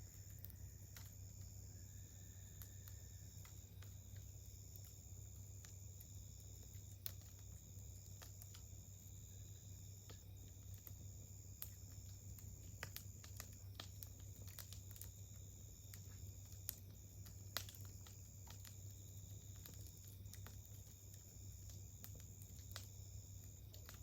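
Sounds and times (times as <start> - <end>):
campfire crackling: 0.0 - 24.0
fire popping and snapping: 0.0 - 24.0.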